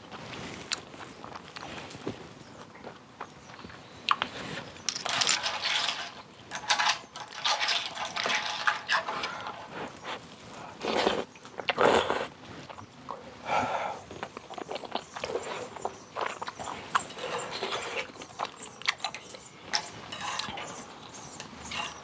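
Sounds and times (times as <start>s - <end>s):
chewing: 0.2s - 22.0s
loud slurping of noodle soup: 10.8s - 12.3s.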